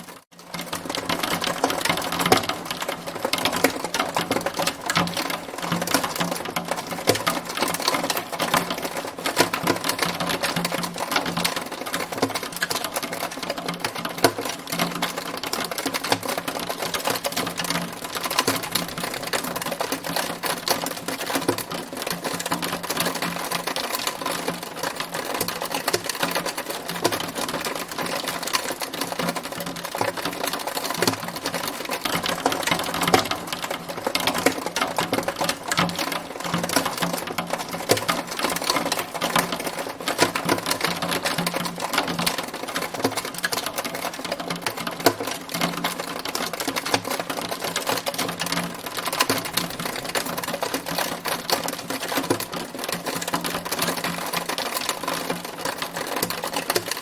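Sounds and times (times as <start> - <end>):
hailstones striking a hard surface: 0.4 - 57.0.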